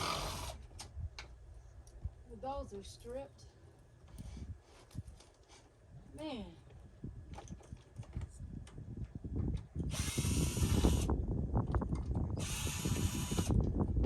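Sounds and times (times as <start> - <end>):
power drill driving: 0.0 - 0.6, 9.9 - 11.1, 12.4 - 13.6.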